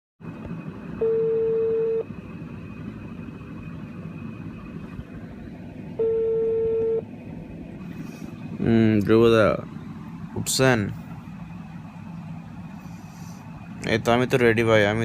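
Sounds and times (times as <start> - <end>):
telephone ringback beeps: 1.0 - 2.1, 6.0 - 7.0.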